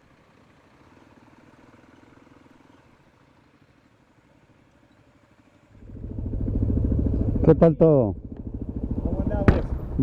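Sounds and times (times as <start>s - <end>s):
faint motorcycle engine running: 0.0s - 10.0s.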